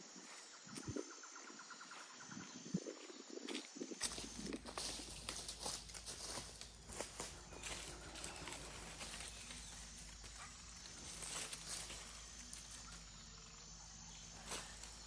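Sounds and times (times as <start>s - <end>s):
faint outdoor rustling: 3.0s - 15.0s.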